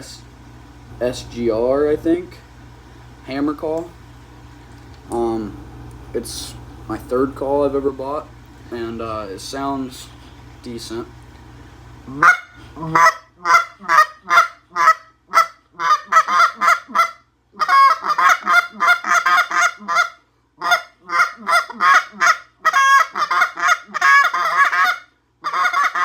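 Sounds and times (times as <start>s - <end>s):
goose call honks and clucks: 12.1s - 26.0s.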